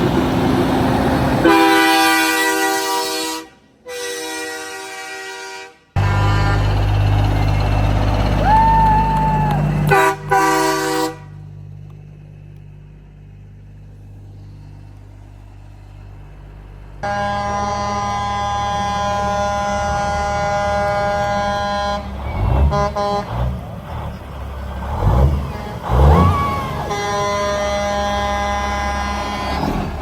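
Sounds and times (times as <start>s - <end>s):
low engine rumble: 0.0s - 3.8s, 6.0s - 30.0s
truck air horn blasts: 1.4s - 7.6s, 9.6s - 11.5s, 17.0s - 24.1s, 24.9s - 30.0s.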